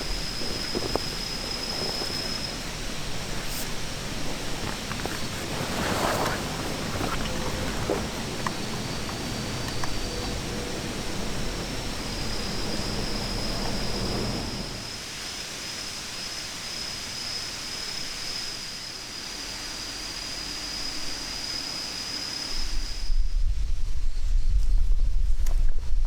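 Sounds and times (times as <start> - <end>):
low rumble: 0.0 - 14.9.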